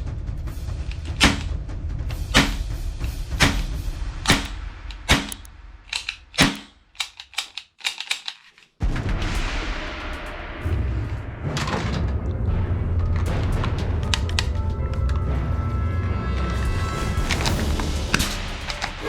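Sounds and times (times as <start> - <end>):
background music: 0.0 - 6.6, 8.8 - 19.0
toy gun firing shots: 0.9 - 1.5, 2.3 - 2.6, 3.4 - 8.4.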